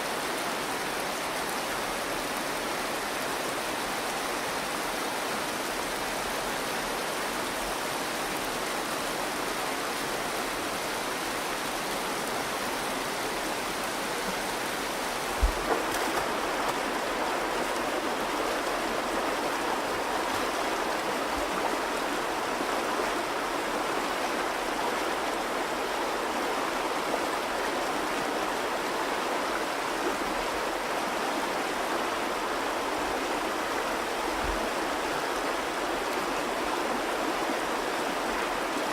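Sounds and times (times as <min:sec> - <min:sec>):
river water rushing: 0:00.0 - 0:38.9
low knock: 0:15.4 - 0:16.2.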